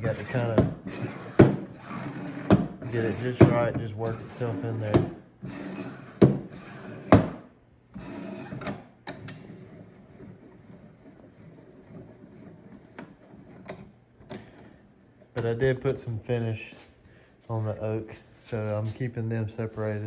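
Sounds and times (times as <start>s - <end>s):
vise jaw sliding scrape: 0.0s - 7.3s, 7.9s - 15.2s.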